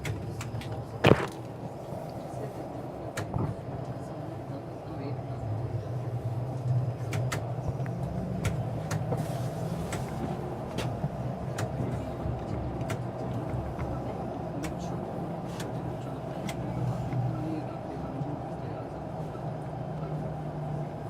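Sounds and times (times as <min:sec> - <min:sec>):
streetcar low rumble and hum: 0:00.0 - 0:21.0.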